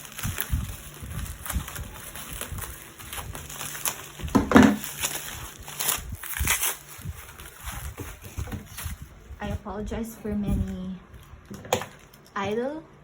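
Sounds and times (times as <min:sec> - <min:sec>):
packaging rustling and crinkling: 0:00.0 - 0:09.7.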